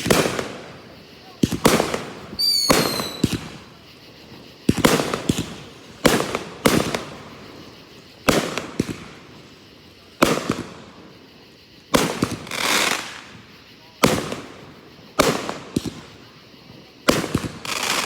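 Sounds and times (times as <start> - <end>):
fireworks booming: 0.0 - 11.3, 11.9 - 18.0
whistling firework: 0.0 - 18.0.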